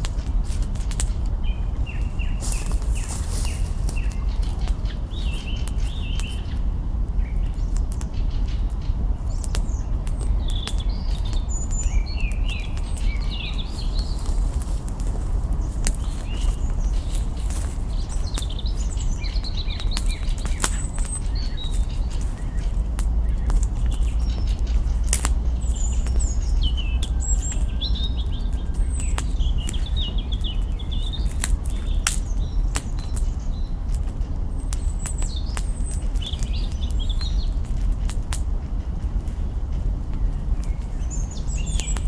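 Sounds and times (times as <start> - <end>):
burning branches popping: 0.0 - 42.0
campfire crackling: 0.0 - 42.0
small birds chirping: 0.0 - 42.0
low rumble: 20.8 - 30.3.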